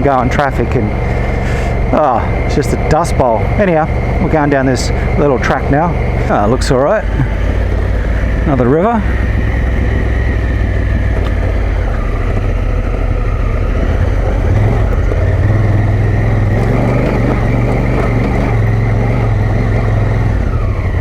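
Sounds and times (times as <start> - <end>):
motorcycle engine running: 0.0 - 21.0
wind noise on microphone: 7.5 - 21.0.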